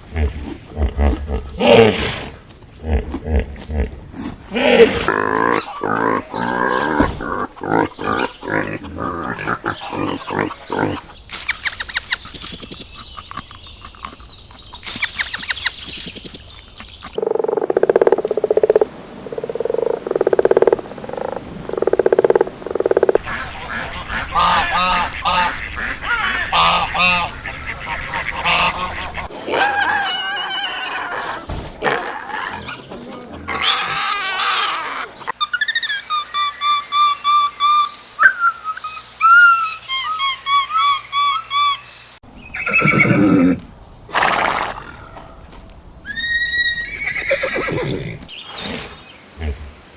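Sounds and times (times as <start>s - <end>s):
farm animal calls: 4.8s - 12.2s, 23.2s - 41.9s
waterfowl calls: 5.1s - 12.4s, 19.4s - 41.9s
animal hissing: 42.7s - 45.2s.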